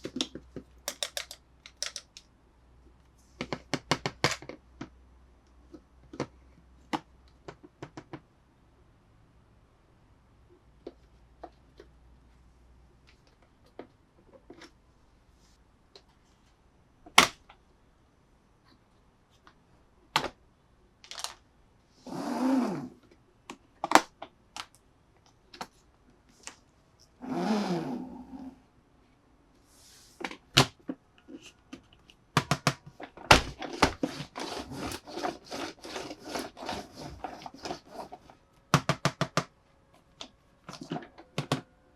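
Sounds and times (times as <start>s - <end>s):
plastic parts clicking and tapping: 0.0s - 2.4s, 3.4s - 5.0s, 5.6s - 8.3s, 21.0s - 21.4s, 23.1s - 25.8s, 30.2s - 41.7s.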